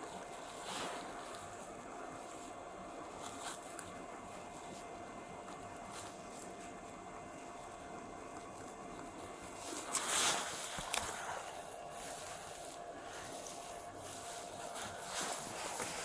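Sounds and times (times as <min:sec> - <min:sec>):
rubbing and scraping: 0:09.4 - 0:16.0.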